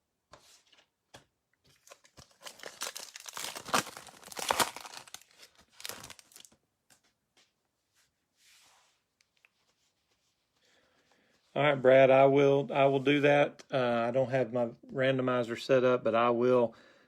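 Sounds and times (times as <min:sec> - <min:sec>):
wrapper tearing and crinkling: 0:01.8 - 0:06.6.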